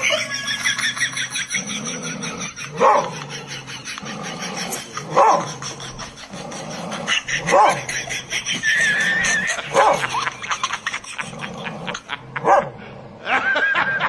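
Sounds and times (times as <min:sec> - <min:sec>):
dog barking and yelping: 0:02.3 - 0:06.2, 0:07.0 - 0:10.5, 0:12.4 - 0:12.8.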